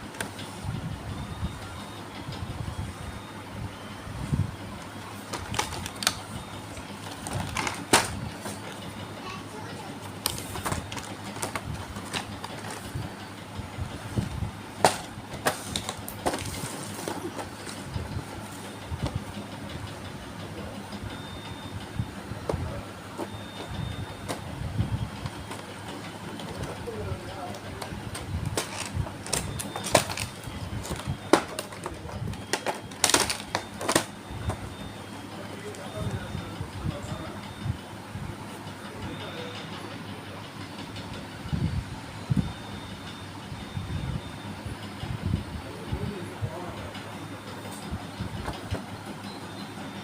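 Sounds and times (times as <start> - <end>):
toy cars and packaging clicking: 5.2 - 8.2, 10.1 - 13.0, 14.8 - 17.8, 27.5 - 34.6.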